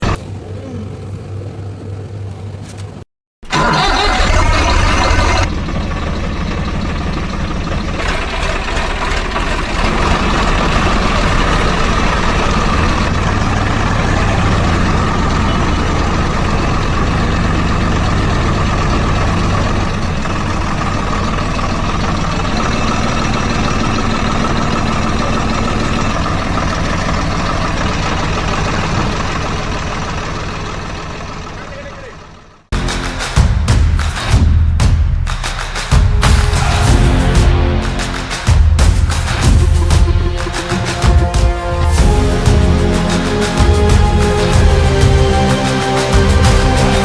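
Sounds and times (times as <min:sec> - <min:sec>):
engine idling with low rumble: 0:00.0 - 0:33.8, 0:36.0 - 0:47.0.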